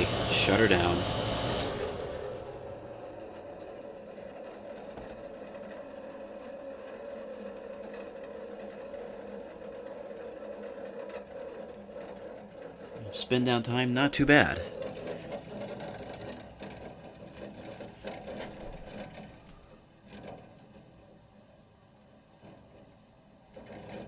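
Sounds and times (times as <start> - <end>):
air conditioner high whine: 0.0 - 4.9, 12.6 - 16.8
fan motor humming: 0.0 - 6.2, 10.4 - 19.8.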